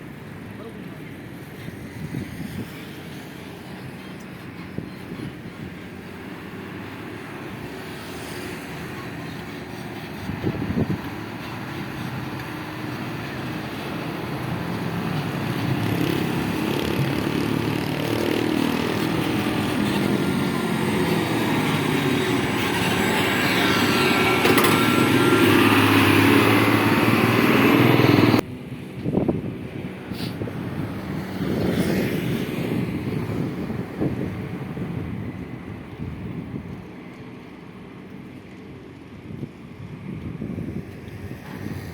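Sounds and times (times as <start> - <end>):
dump truck engine under load: 10.3 - 28.4.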